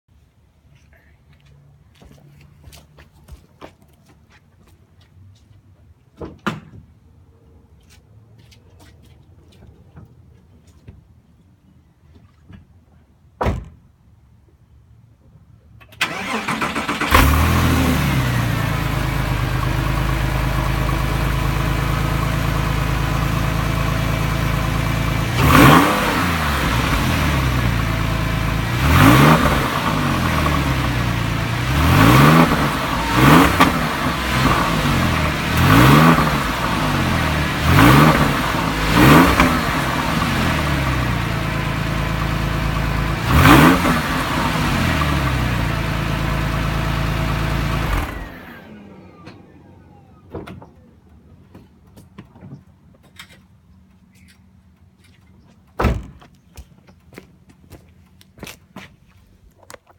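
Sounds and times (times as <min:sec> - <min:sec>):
car engine starting and revving: 0:16.0 - 0:50.9.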